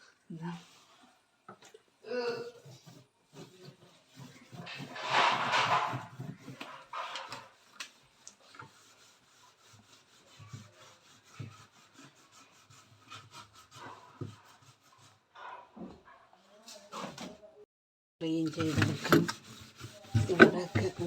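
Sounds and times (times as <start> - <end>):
scrubbing inside refrigerator: 2.3 - 15.9, 18.2 - 21.0.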